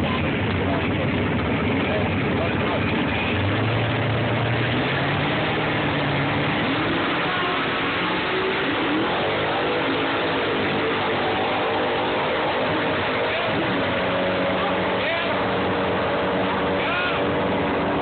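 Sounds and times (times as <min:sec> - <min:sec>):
drag car engine revving and accelerating: 0:00.0 - 0:18.0.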